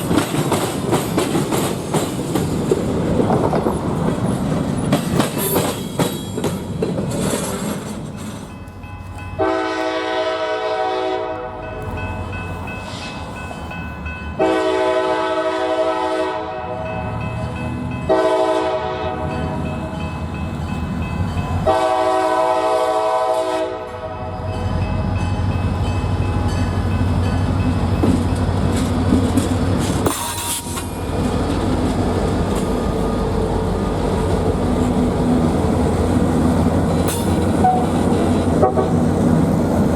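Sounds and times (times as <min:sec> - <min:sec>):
train rolling past rumbling: 0:00.0 - 0:39.9
locomotive air horn: 0:09.4 - 0:11.6, 0:14.4 - 0:16.9, 0:18.1 - 0:19.5, 0:21.6 - 0:24.5, 0:37.5 - 0:39.0.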